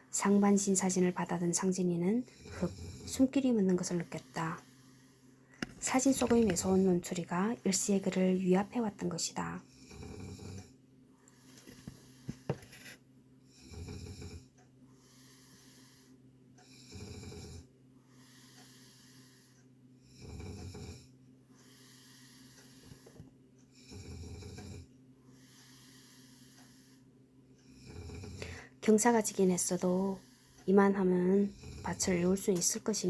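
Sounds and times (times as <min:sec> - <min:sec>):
steady low hum: 0:00.0 - 0:33.0
person snoring: 0:02.2 - 0:03.3, 0:09.7 - 0:10.7, 0:13.5 - 0:14.5, 0:15.1 - 0:23.1, 0:23.8 - 0:27.0, 0:27.7 - 0:28.7, 0:31.3 - 0:32.4.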